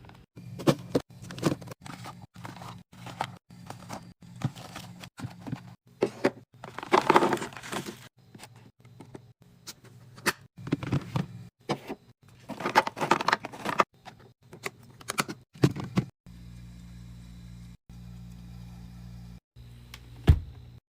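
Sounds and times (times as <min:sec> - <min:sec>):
packaging crinkling and rustling: 0:00.6 - 0:05.7, 0:06.6 - 0:08.1.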